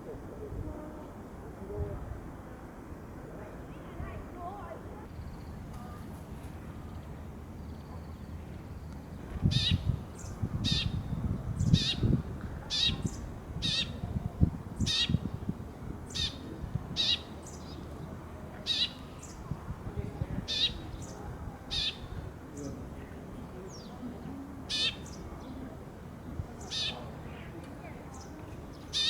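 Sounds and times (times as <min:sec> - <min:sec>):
sparrow chirping: 0:09.4 - 0:14.1, 0:14.8 - 0:15.4, 0:16.1 - 0:18.0, 0:18.6 - 0:19.5, 0:20.4 - 0:22.8, 0:24.7 - 0:25.6, 0:26.6 - 0:27.4, 0:28.1 - 0:29.0.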